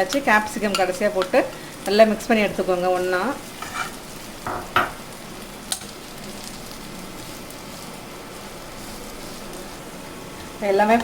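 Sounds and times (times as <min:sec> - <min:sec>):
food sizzling in oil: 0:00.0 - 0:11.0
utensil knocking on pan: 0:04.4 - 0:05.0.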